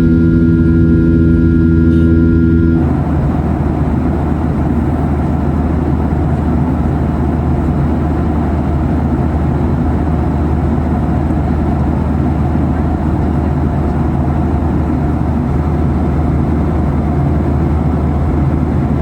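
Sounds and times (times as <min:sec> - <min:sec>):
jet engine and airflow roar: 0:00.0 - 0:19.0.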